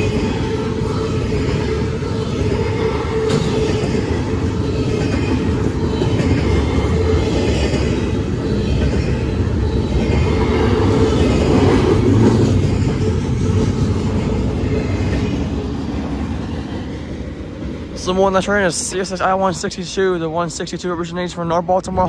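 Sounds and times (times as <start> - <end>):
freight train wheels rolling: 0.0 - 21.6.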